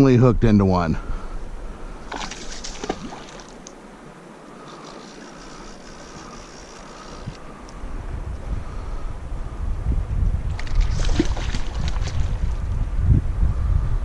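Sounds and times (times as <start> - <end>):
wind buffeting microphone: 0.0 - 14.0
river water rushing: 1.6 - 7.9.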